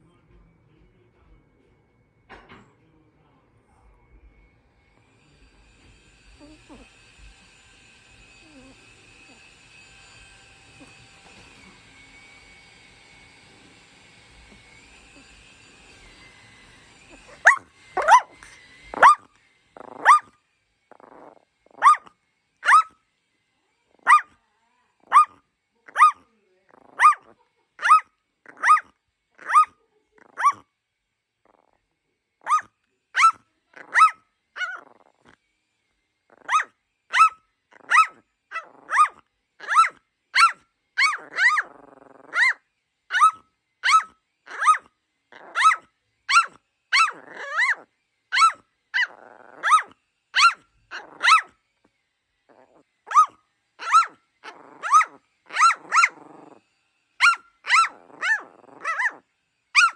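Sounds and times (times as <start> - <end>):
dog growling: 6.2 - 7.4, 8.3 - 12.4, 14.3 - 16.3, 17.0 - 20.3, 20.9 - 22.9, 23.9 - 24.3, 25.0 - 30.6, 31.4 - 35.4, 36.3 - 51.5, 52.5 - 56.6, 57.2 - 59.2
small dog barking: 17.1 - 20.3, 20.9 - 23.0, 23.9 - 24.4, 25.0 - 30.6, 32.4 - 35.3, 36.3 - 51.5, 52.5 - 56.6, 57.2 - 59.9.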